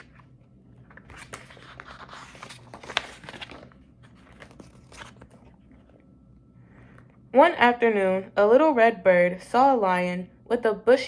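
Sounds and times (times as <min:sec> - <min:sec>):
paper pages rustling: 0:00.0 - 0:06.0.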